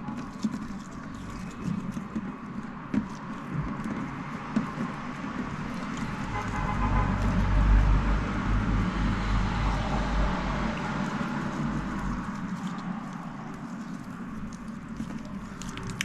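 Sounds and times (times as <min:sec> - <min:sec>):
deep rumble: 0:05.2 - 0:16.0.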